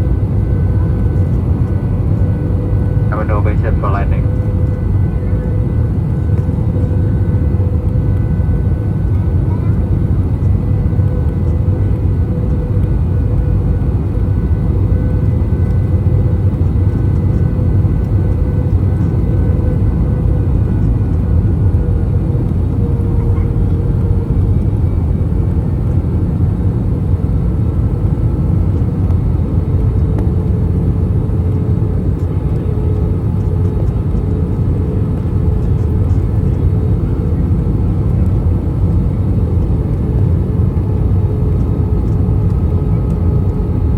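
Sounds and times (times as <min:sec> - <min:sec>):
airplane cabin engine rumble: 0:00.0 - 0:43.9.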